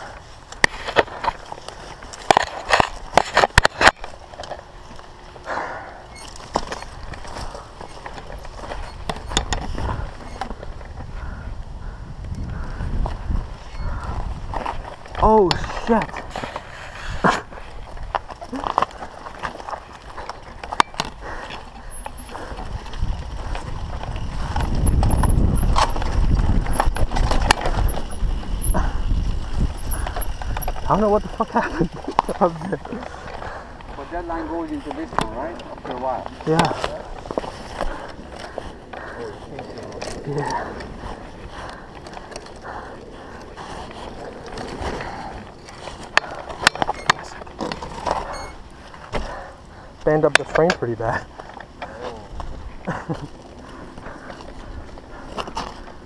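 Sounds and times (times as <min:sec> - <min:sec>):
mountain bike clattering: 0:00.0 - 0:56.0
steady rustling: 0:00.0 - 0:56.0
wind rumble on microphone: 0:08.4 - 0:18.4, 0:21.1 - 0:32.3.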